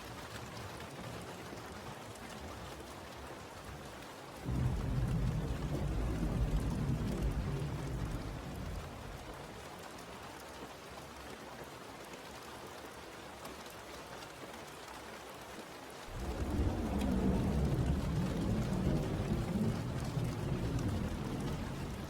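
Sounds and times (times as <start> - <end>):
steady rain falling: 0.0 - 22.0
low rumble of thunder: 4.4 - 9.6, 16.1 - 22.0.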